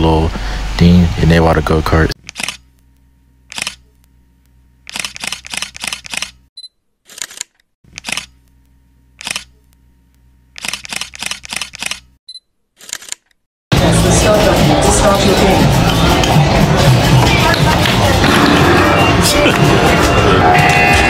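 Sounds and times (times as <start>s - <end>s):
camera shutter clicks: 2.2s - 2.6s, 3.5s - 3.8s, 4.9s - 6.4s, 7.1s - 8.4s, 9.2s - 9.5s, 10.6s - 12.1s.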